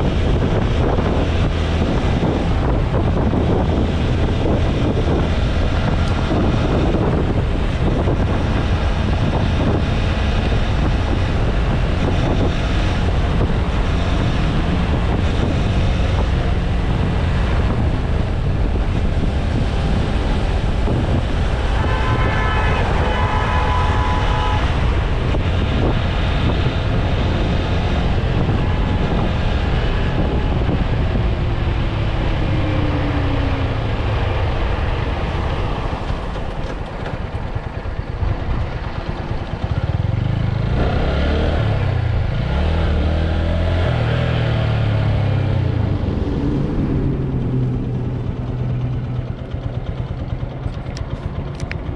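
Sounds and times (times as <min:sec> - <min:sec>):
motorcycle engine cruising: 0:00.0 - 0:51.9
wind buffeting microphone: 0:00.0 - 0:51.9
horn-like tone: 0:21.6 - 0:25.1.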